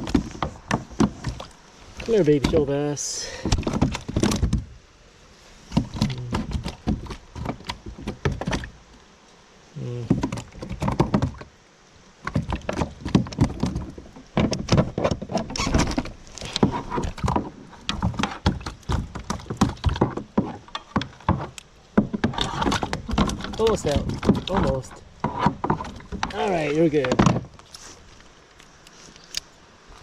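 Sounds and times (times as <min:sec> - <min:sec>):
fish thrashing against kayak: 0:00.0 - 0:04.7, 0:05.7 - 0:08.8, 0:12.2 - 0:28.3.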